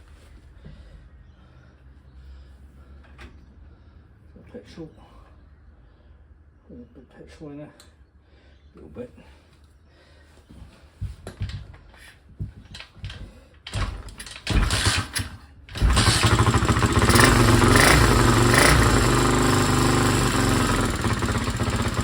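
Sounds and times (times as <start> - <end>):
kick-start knocks: 13.7 - 17.7
dirt bike engine running: 14.0 - 22.0.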